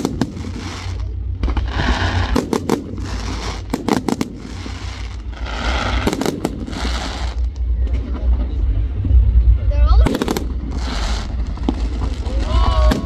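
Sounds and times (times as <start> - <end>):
hissing crackle: 0.0 - 8.0, 10.0 - 13.0
firework bangs: 0.0 - 8.4, 10.0 - 13.0
low rumble: 0.0 - 13.0.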